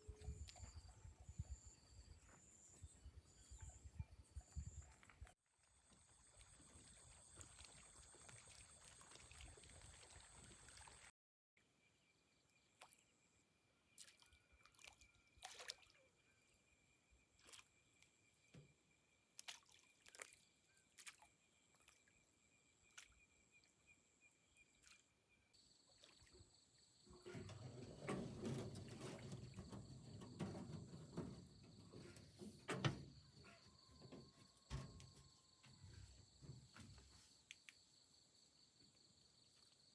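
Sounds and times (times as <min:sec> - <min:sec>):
water sloshing: 0:25.9 - 0:37.2.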